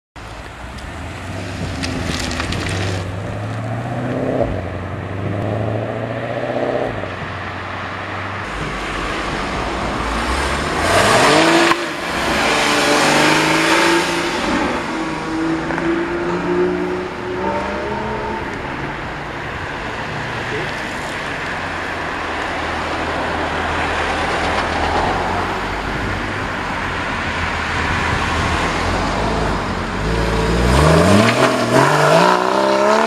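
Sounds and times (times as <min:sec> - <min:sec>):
sports car engines accelerating: 0:00.4 - 0:33.0.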